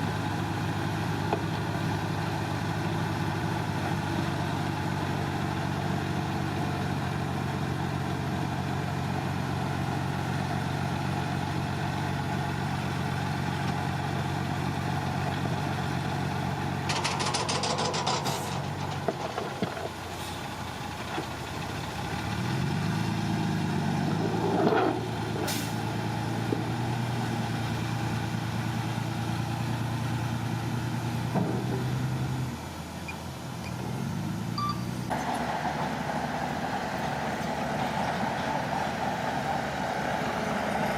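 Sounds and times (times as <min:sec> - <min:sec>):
diesel truck engine running: 0:00.0 - 0:40.9
rapid rattle: 0:16.8 - 0:19.8.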